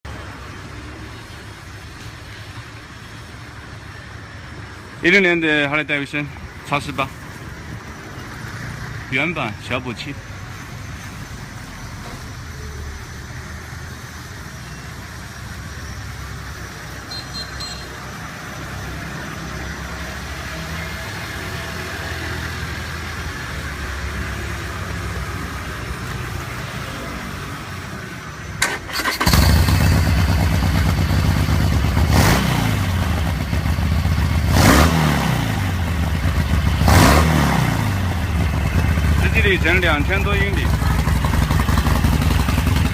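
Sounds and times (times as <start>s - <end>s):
motorcycle engine starting and revving: 28.6s - 42.9s.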